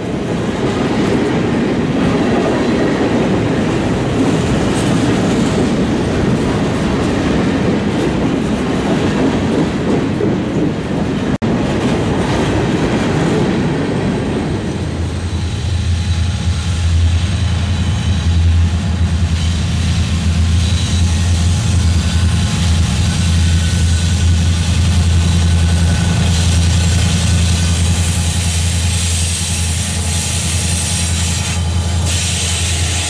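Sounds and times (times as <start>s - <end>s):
distant diesel locomotive hum: 0.0s - 33.0s
train wheels rumbling on rail: 0.0s - 33.0s.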